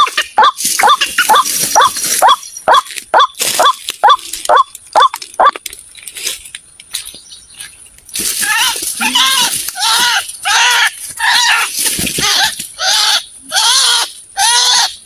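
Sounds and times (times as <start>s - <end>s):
waterhen calling: 0.0s - 5.6s.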